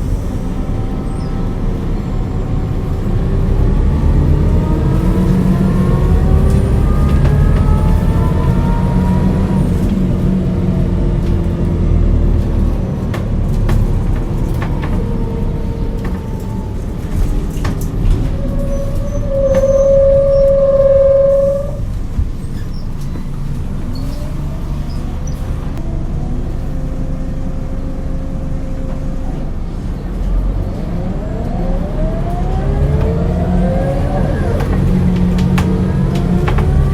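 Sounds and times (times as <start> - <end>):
bus engine: 0.0 - 36.9
steady tone: 18.9 - 22.0.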